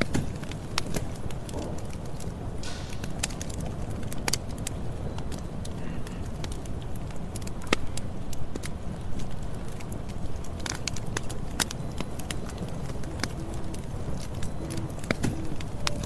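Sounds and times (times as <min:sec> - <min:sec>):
low rumble of flames: 0:00.0 - 0:16.0
wood crackling and popping: 0:00.0 - 0:16.0.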